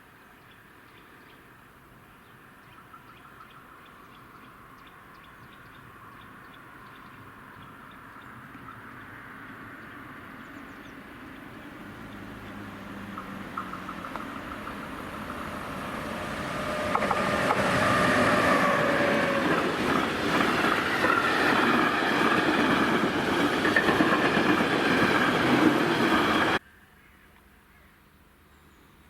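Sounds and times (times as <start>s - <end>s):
train rumbling past: 8.2s - 26.6s
steady whining tones: 13.6s - 26.6s.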